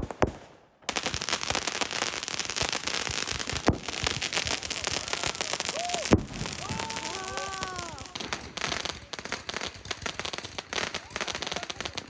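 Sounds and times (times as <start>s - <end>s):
firecrackers crackling: 0.0s - 12.0s
sharp firework bangs: 0.0s - 12.0s.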